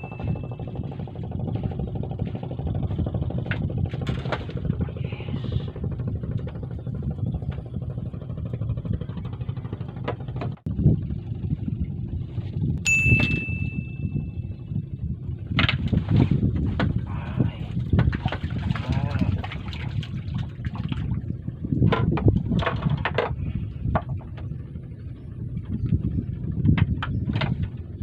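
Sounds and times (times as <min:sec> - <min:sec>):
small bell ding: 0:00.0 - 0:00.6, 0:12.8 - 0:14.1
low motor drone: 0:00.0 - 0:28.0.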